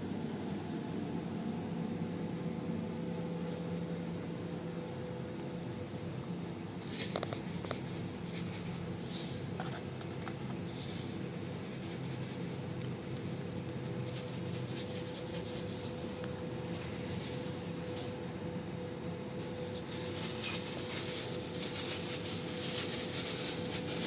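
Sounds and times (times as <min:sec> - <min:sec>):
scraping and rubbing: 0:19.4 - 0:24.0.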